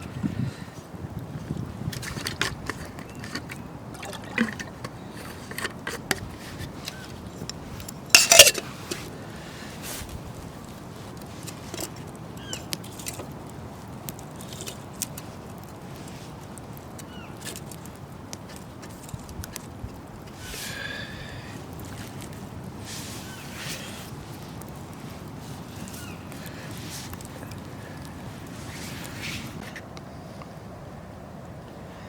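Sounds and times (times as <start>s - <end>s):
liquid sloshing: 2.1s - 5.7s.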